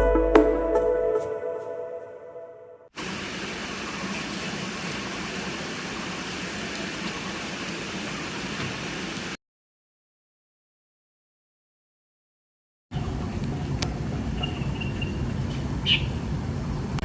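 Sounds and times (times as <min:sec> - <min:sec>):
steady hiss: 0:03.0 - 0:09.4.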